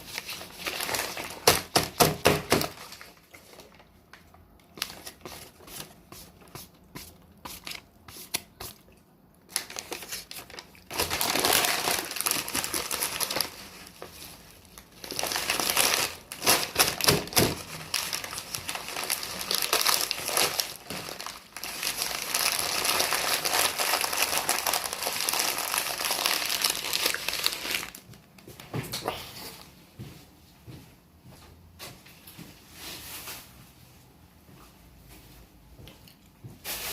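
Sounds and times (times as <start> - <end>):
wrapping paper crinkling: 0.0 - 8.9, 9.5 - 28.4.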